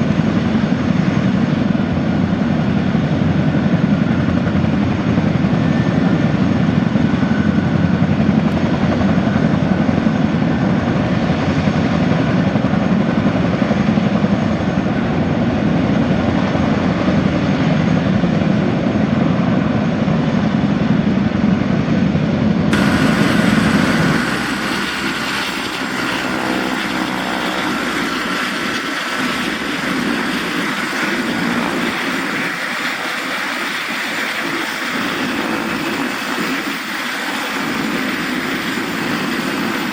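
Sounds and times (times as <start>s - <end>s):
helicopter rotor drone: 0.0s - 39.9s
turbine whine: 22.4s - 39.9s.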